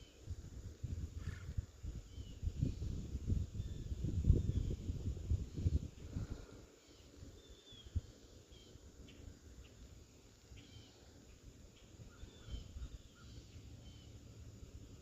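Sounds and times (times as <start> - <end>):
high falling bird chirps: 6.8 - 14.4.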